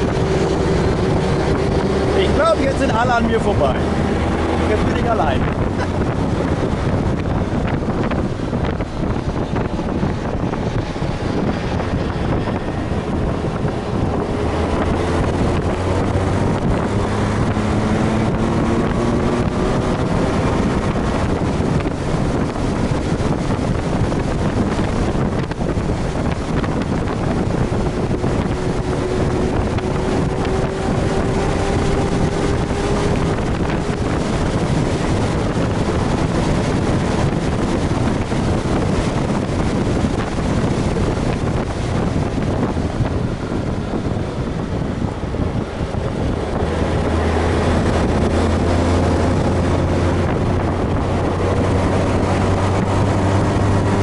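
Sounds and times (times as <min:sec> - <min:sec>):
motorcycle engine running: 0:00.0 - 0:54.0
wind noise on microphone: 0:00.0 - 0:54.0.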